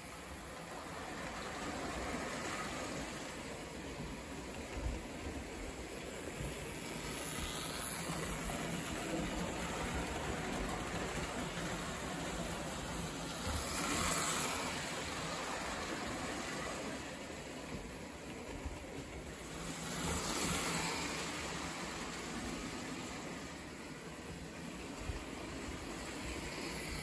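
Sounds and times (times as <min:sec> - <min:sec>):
toy train rumbling on track: 0:00.0 - 0:27.0.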